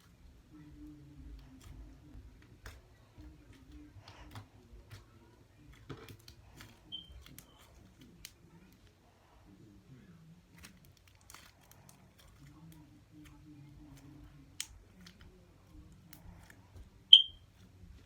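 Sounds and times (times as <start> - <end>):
high-pitched chirp: 6.9 - 7.1, 17.1 - 17.4.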